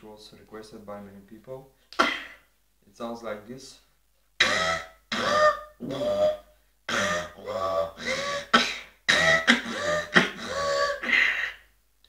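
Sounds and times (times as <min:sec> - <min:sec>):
beatboxing robot mouth bursts: 0:04.4 - 0:11.6.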